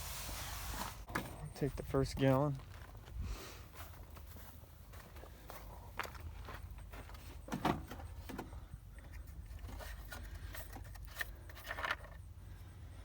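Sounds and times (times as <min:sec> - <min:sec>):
plastic jug handling clicks and knocks: 0:07.4 - 0:12.3.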